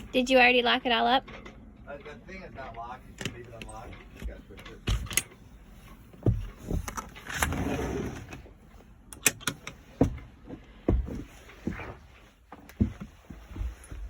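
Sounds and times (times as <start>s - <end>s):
hatch latches knocking and clicking: 3.2s - 5.4s, 9.1s - 10.3s.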